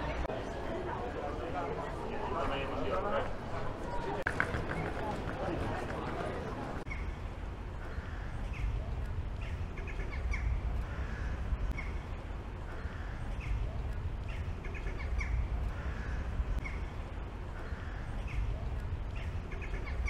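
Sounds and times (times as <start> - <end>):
steady low rumble: 6.6 - 20.0
birds calling: 7.8 - 20.0.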